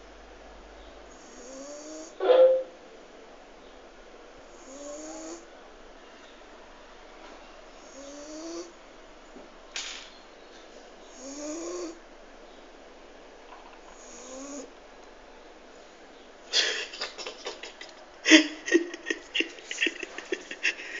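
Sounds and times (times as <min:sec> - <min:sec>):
dog snoring: 0:01.1 - 0:02.2, 0:04.5 - 0:05.4, 0:07.8 - 0:08.8, 0:11.1 - 0:12.0, 0:13.9 - 0:14.7.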